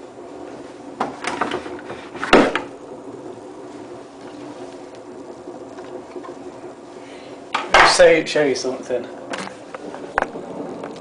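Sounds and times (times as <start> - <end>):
washing machine drum tumbling: 0.9 - 8.4.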